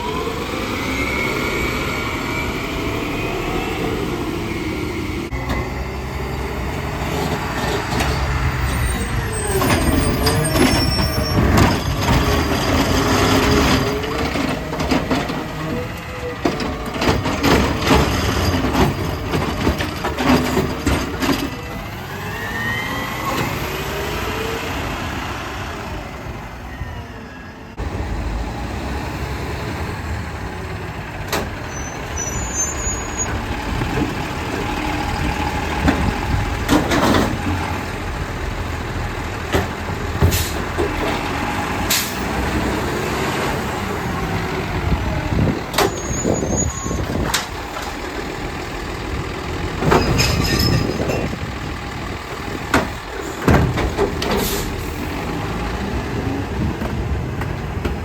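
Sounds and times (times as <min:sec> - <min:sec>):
garbage truck running: 0:00.0 - 0:58.0
air brake hissing: 0:40.3 - 0:40.7, 0:54.4 - 0:55.0.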